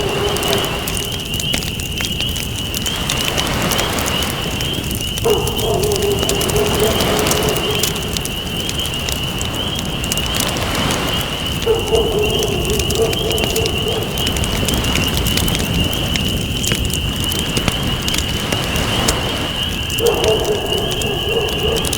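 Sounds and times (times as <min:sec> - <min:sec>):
low hoot-like call: 0:00.0 - 0:01.5, 0:05.2 - 0:08.6, 0:11.6 - 0:14.7, 0:20.0 - 0:21.9
campfire crackling: 0:00.0 - 0:21.9
ocean waves: 0:00.0 - 0:21.9.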